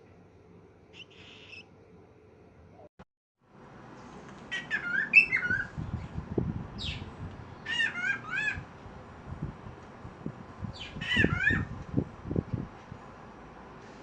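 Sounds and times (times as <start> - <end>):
bird warbling: 0.9 - 1.7, 4.5 - 5.7, 6.8 - 8.7, 10.7 - 11.7.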